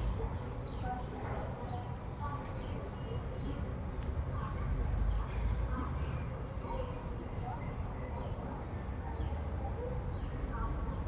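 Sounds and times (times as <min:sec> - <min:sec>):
insects droning: 0:00.0 - 0:06.1.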